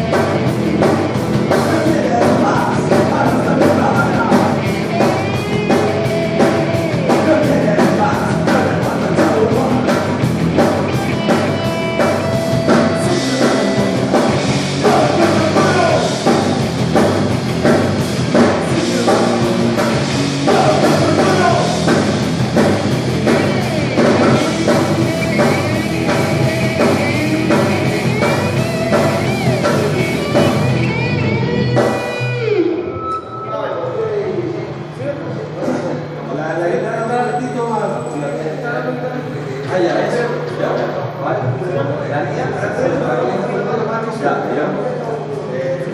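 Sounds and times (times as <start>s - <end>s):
drums with cymbals: 0.0s - 32.6s
bass guitar: 0.0s - 33.5s
distorted electric guitar: 0.0s - 43.4s
person singing: 0.8s - 4.9s, 12.1s - 16.2s, 18.7s - 21.8s.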